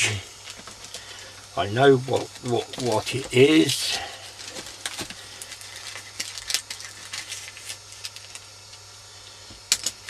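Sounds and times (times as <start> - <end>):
packaging crackling: 2.0 - 8.8.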